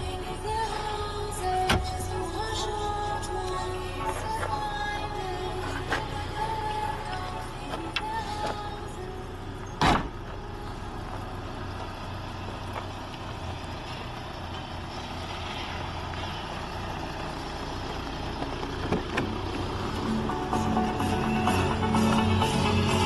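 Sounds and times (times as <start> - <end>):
diesel engine running: 0.0 - 23.0
sharp thump: 9.8 - 10.2.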